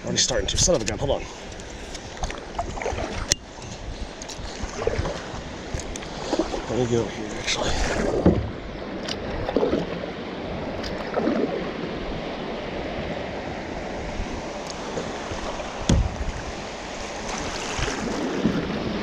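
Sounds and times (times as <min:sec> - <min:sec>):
water rushing: 0:00.0 - 0:19.0
kayak knocks: 0:04.4 - 0:09.9, 0:14.8 - 0:16.6.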